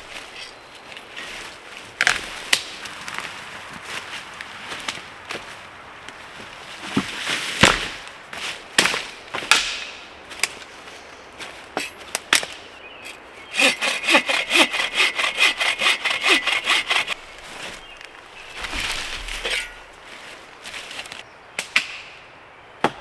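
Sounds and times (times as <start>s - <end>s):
wood cracking and snapping: 2.0s - 3.4s, 7.0s - 8.1s, 12.2s - 20.1s
hand saw cutting wood: 13.0s - 17.8s, 18.5s - 20.0s.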